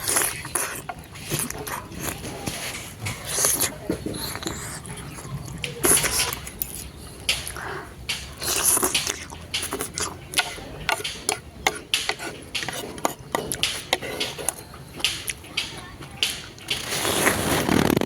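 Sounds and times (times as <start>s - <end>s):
wet chewing: 0.0s - 17.9s
cutlery clicking on dish: 5.6s - 17.0s.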